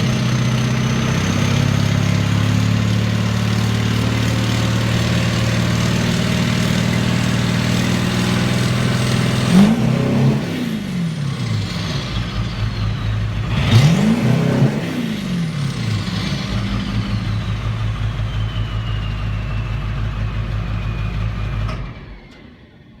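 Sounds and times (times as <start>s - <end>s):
diesel engine idling and revving: 0.0s - 23.0s
high falling whistle: 16.6s - 21.6s.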